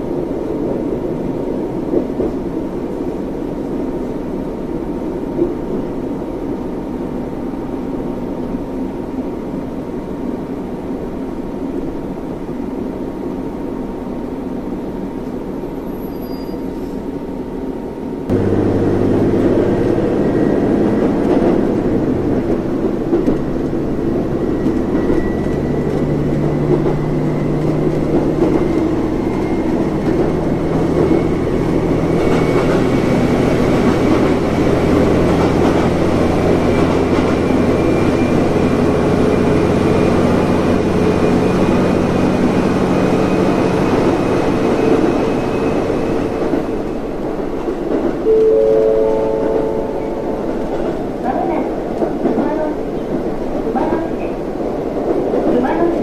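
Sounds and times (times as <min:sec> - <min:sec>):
train rumble inside carriage: 0:00.0 - 0:56.0.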